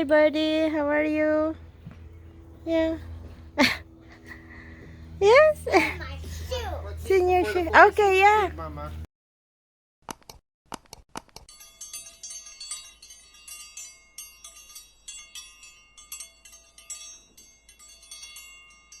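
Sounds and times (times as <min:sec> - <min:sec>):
high chime bell tones: 0:11.5 - 0:19.0.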